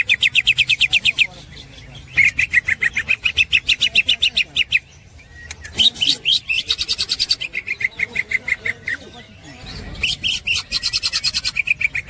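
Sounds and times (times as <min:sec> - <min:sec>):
bird singing fast repeated notes: 0:00.0 - 0:12.0.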